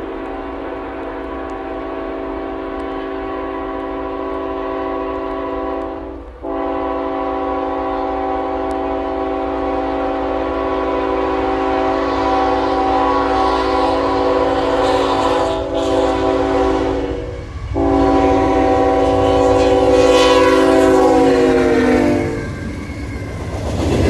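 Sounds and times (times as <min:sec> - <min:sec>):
locomotive air horn blast: 0:00.0 - 0:22.6
rail and wheel noise: 0:00.0 - 0:24.0.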